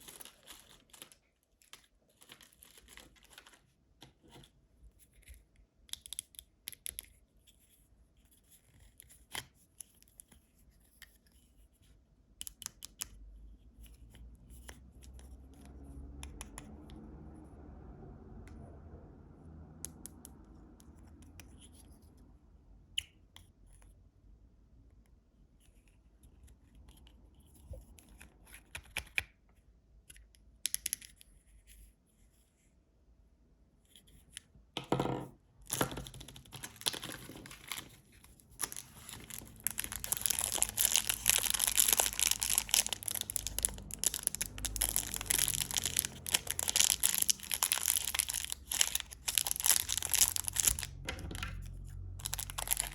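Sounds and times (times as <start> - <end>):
wrappers crinkling and tearing: 0.0 - 3.7, 35.7 - 52.9.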